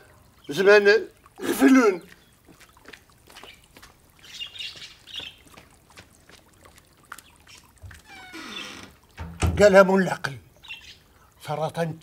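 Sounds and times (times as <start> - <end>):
faint footsteps: 2.0 - 9.4.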